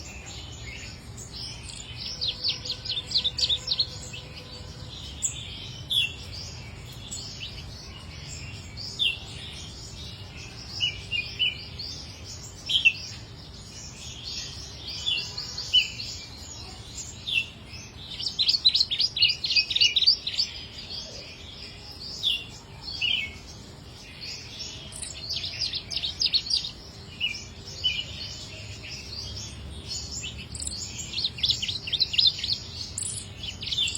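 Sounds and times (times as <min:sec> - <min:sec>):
songbird trilling: 0:00.0 - 0:09.3, 0:14.0 - 0:21.3, 0:24.2 - 0:33.9
bird chirps: 0:00.0 - 0:33.9.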